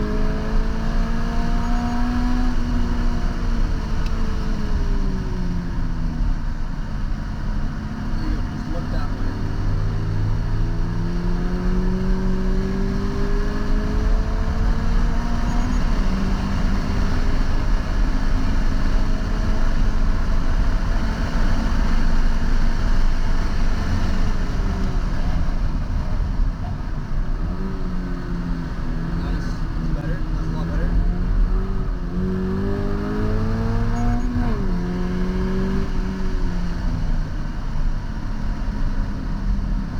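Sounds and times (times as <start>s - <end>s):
car engine accelerating: 0.0s - 39.9s
gear change: 0.9s - 39.9s.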